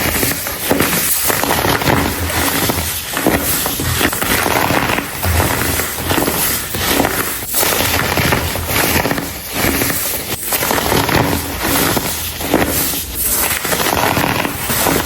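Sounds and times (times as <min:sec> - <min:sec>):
baking soda crushed by hand: 0:00.0 - 0:15.0.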